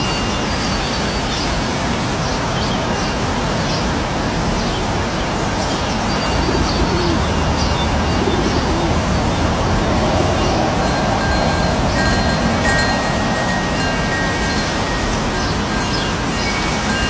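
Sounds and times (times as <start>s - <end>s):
birds chirping: 0.0s - 17.0s
waterfall rushing: 0.0s - 17.0s
low bird calls: 6.1s - 9.4s.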